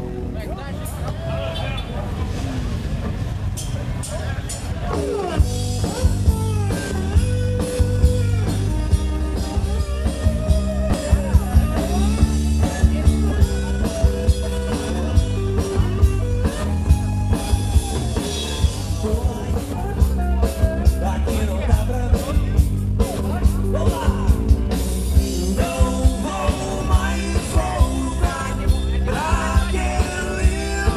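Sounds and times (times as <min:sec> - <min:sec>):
bass: 0:00.0 - 0:30.9
steady drum beat: 0:03.1 - 0:30.9
lead guitar melody: 0:05.2 - 0:21.1.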